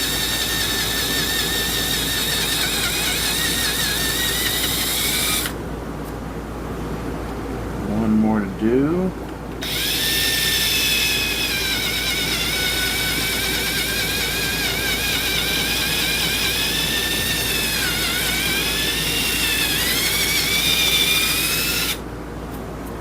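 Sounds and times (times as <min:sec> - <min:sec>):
electric drill whining: 0:00.0 - 0:05.6, 0:09.6 - 0:22.0.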